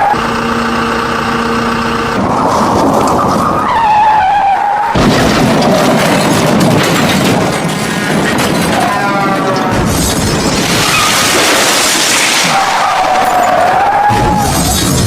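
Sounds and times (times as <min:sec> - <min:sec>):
loud rough noise: 0:00.0 - 0:15.0
vehicle skid with squeal: 0:02.2 - 0:05.0, 0:08.7 - 0:11.5, 0:12.1 - 0:15.0.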